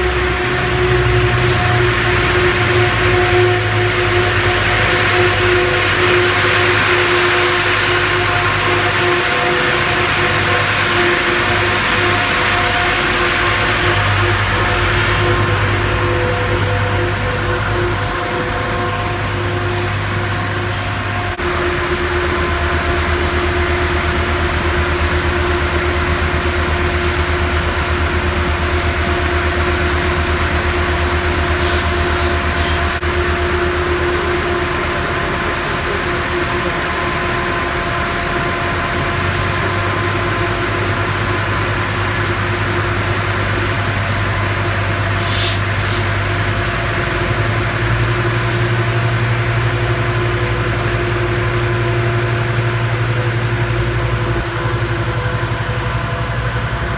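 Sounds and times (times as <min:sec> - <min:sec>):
diesel locomotive engine running: 0:00.0 - 0:56.9
air hisses: 0:01.3 - 0:02.3, 0:19.6 - 0:21.4, 0:31.6 - 0:33.0, 0:45.0 - 0:46.3, 0:47.9 - 0:49.0.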